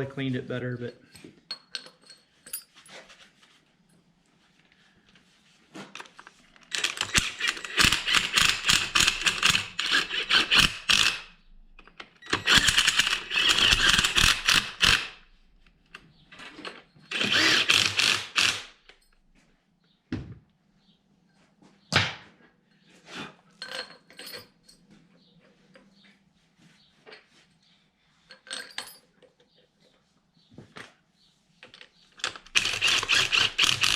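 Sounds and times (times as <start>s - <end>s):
impact tool rapid clicking: 6.7s - 11.2s, 12.3s - 15.2s, 17.1s - 18.8s, 32.2s - 33.9s.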